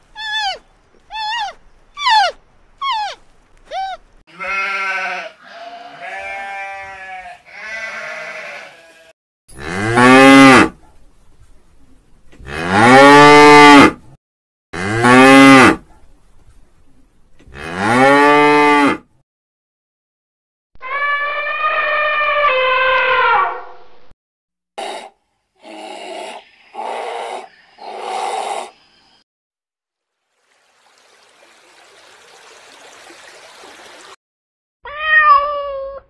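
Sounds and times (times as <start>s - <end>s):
sheep bleating: 4.3s - 9.1s
cow mooing: 4.3s - 10.7s
cat meowing: 34.9s - 36.0s.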